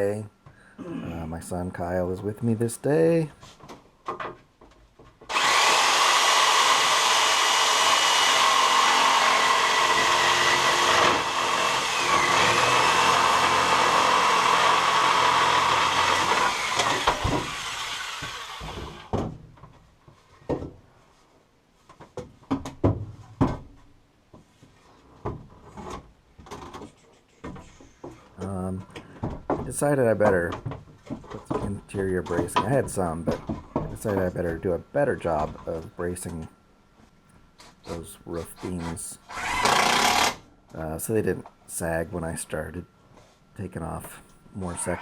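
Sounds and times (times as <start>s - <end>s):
electric power tool whining: 5.3s - 19.1s, 39.3s - 40.4s.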